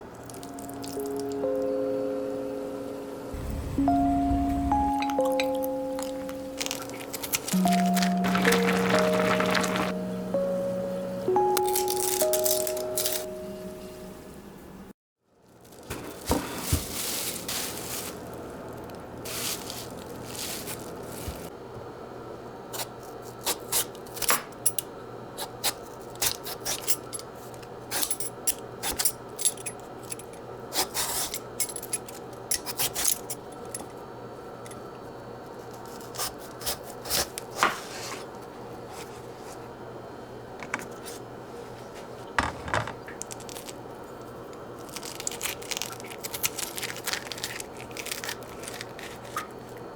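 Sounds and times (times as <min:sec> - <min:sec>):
steady low hum: 0:01.6 - 0:08.1.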